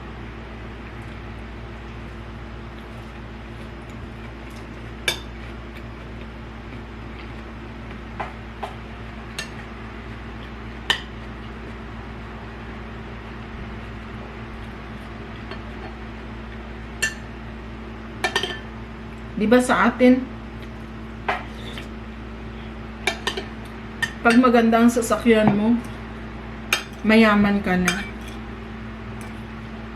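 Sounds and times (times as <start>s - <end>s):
cutlery clinking on a plate: 18.2s - 18.6s, 23.1s - 24.4s.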